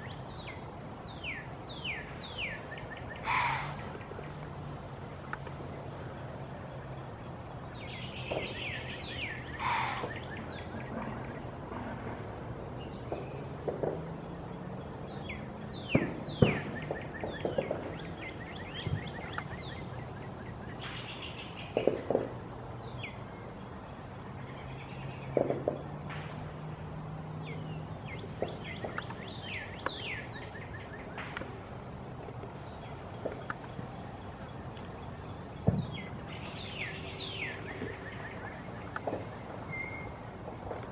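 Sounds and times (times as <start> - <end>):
birds chirping: 0.0 - 11.6, 14.2 - 22.1, 27.3 - 40.8
steady low hum: 26.0 - 40.9.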